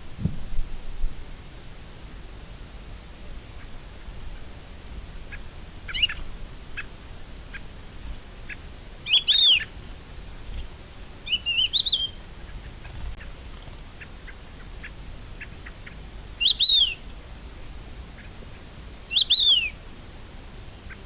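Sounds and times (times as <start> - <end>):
loud high bird calls: 5.2 - 7.8, 8.4 - 9.8, 11.2 - 17.1, 18.1 - 19.8
faint bird chirps: 5.2 - 9.8, 10.5 - 17.2, 18.1 - 19.8, 20.7 - 21.0.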